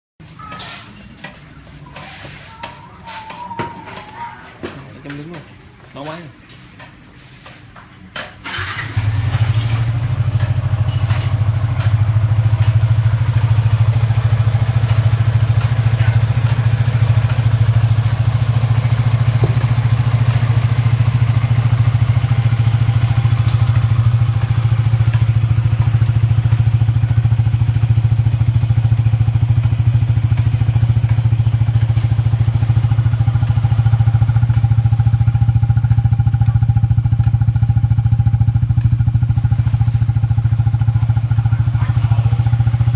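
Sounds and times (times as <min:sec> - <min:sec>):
motorcycle engine idling: 0:08.4 - 0:42.9.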